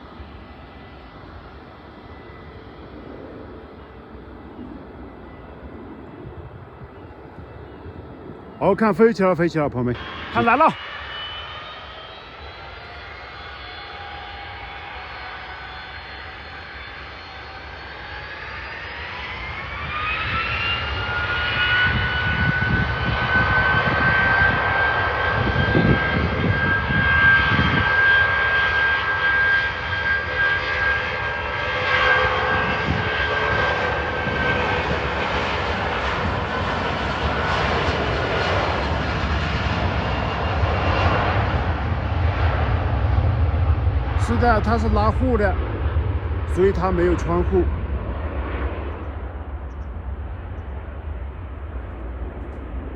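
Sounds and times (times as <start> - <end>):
high engine whine: 0.0 - 52.9
jet engines spooling up: 0.0 - 52.9.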